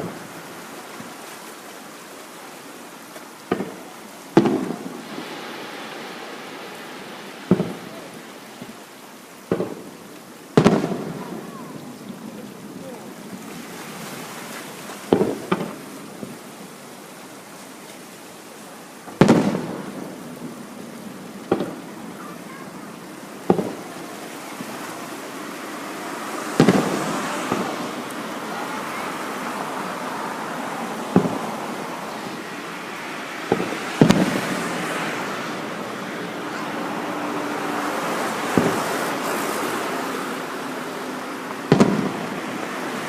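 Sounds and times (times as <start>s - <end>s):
fireworks booming: 0.0s - 0.6s, 3.4s - 14.1s, 15.0s - 16.5s, 19.0s - 32.6s, 33.4s - 37.1s, 37.7s - 40.3s, 41.4s - 43.0s
steady hiss: 0.0s - 43.0s.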